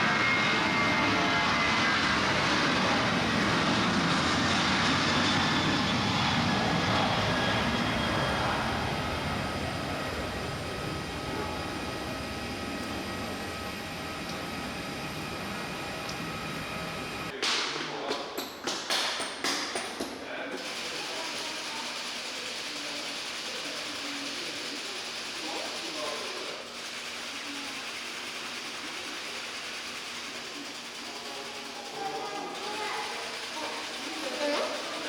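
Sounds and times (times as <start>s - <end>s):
jet engines whining: 0.0s - 17.3s.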